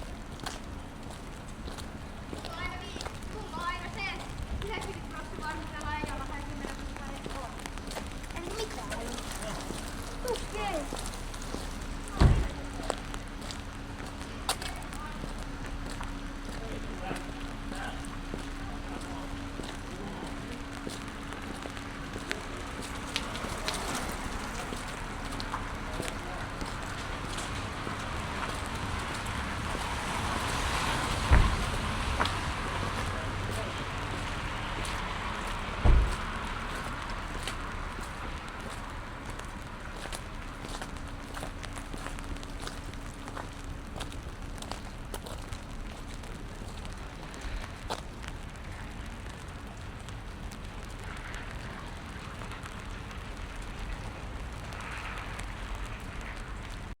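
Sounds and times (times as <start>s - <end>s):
car tyres hissing on wet street: 0.0s - 57.0s
rain on wet pavement: 0.0s - 57.0s
raindrops ticking: 0.0s - 57.0s
low thump: 12.2s - 12.6s, 31.2s - 31.7s, 35.8s - 36.3s.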